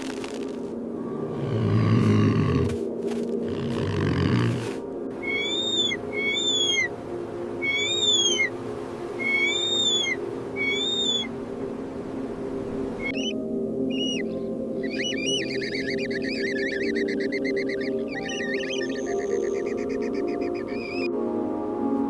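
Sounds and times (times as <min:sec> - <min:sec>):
high whistled animal call: 0:05.2 - 0:06.9, 0:07.6 - 0:08.5, 0:09.2 - 0:11.3, 0:13.0 - 0:21.1.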